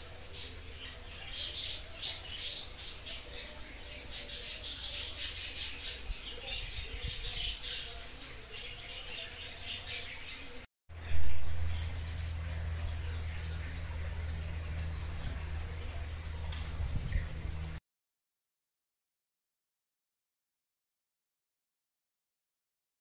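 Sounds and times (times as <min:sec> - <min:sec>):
birds chirping and squawking: 0:00.2 - 0:17.7.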